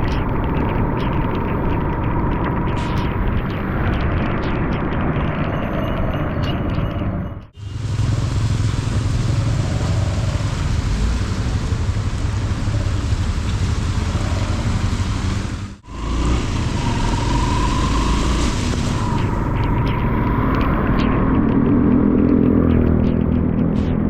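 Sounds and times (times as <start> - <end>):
traffic rumble: 0.0 - 24.0
rain hiss on wet road: 7.6 - 19.6.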